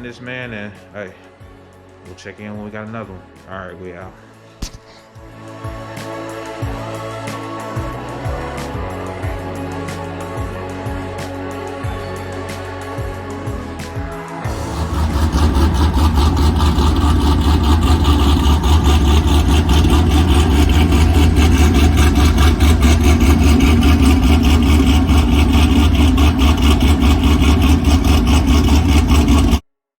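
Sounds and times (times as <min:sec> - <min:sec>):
car engine idling: 0:13.6 - 0:29.6.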